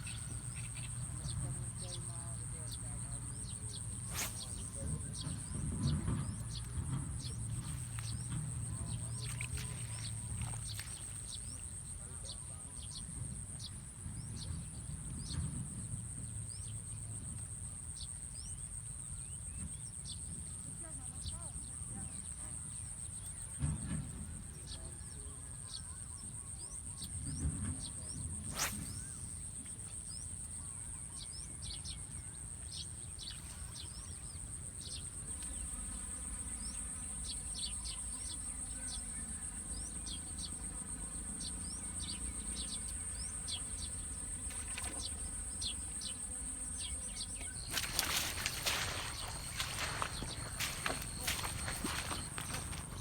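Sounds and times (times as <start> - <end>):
insects droning: 0.0 - 53.0
bird chirps: 46.8 - 53.0.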